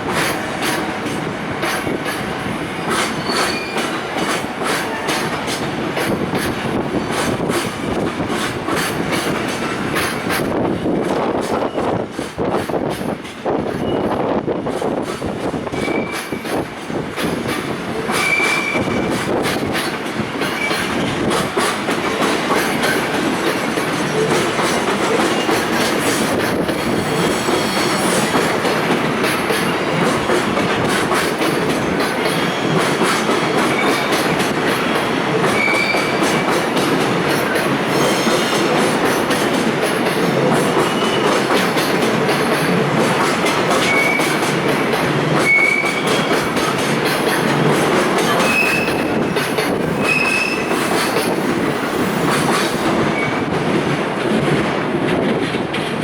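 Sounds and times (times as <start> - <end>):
train wheels rumbling on rails: 0.0 - 56.0
wheel squeals: 3.1 - 4.0, 15.8 - 16.4, 35.5 - 36.3, 45.4 - 46.3, 48.3 - 49.1, 50.0 - 50.8.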